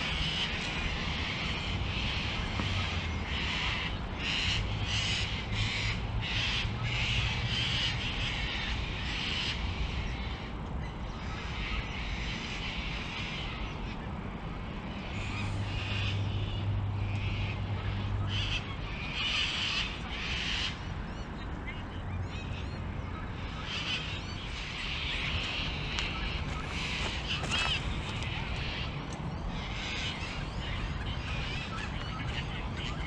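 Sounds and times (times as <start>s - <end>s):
bird calling: 15.1s - 33.0s.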